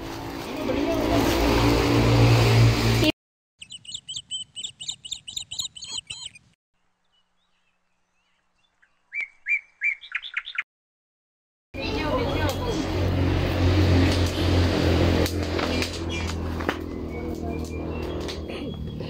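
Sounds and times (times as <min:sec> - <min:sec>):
small bird chirping: 0:03.6 - 0:10.6.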